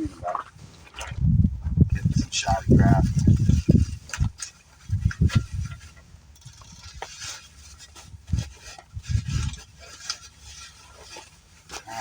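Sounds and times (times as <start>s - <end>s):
wind rumbling on microphone: 0.0s - 10.4s
bubble wrap crackling: 6.5s - 12.0s.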